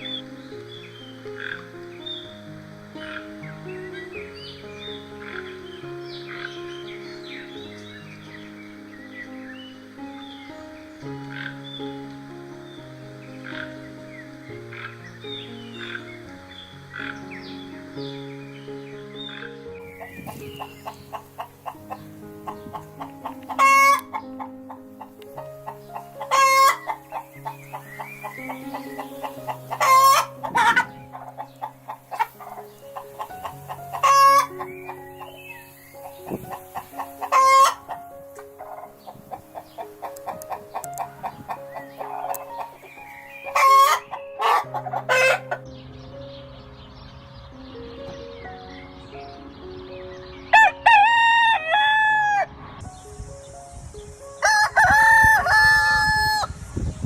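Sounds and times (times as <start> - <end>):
faint background music: 0.0 - 57.0
harsh chicken squawks: 19.3 - 35.3, 36.0 - 38.0, 38.6 - 45.6
chickens clucking: 19.3 - 45.7
rooster crowing: 20.3 - 24.2, 25.8 - 34.7, 50.6 - 52.5, 54.4 - 56.5.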